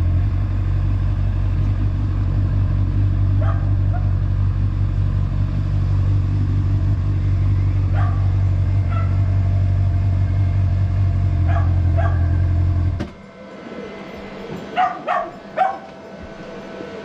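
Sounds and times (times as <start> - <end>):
motorcycle engine idling: 0.0 - 13.0
dog barking: 3.4 - 4.2, 7.9 - 9.3, 11.4 - 12.4, 14.8 - 16.0.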